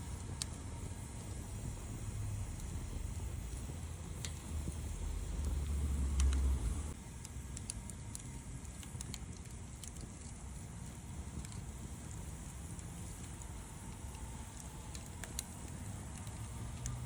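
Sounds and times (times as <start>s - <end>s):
low rumble: 0.0s - 7.0s
campfire crackling and popping: 0.0s - 17.0s.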